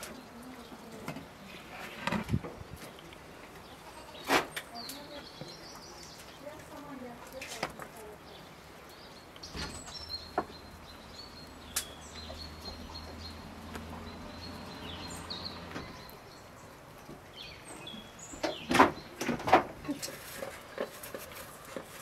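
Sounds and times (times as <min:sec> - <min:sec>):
small birds chirping: 0:00.0 - 0:22.0
knocks and rustles: 0:01.0 - 0:03.0, 0:18.4 - 0:22.0.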